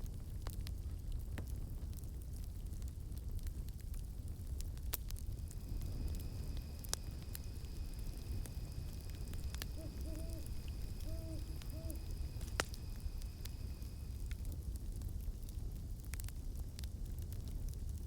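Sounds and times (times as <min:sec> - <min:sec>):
campfire crackling and popping: 0:00.0 - 0:18.0
low rumble: 0:05.1 - 0:15.4
high-pitched insect tone: 0:05.4 - 0:14.3
owl hooting: 0:05.6 - 0:14.1.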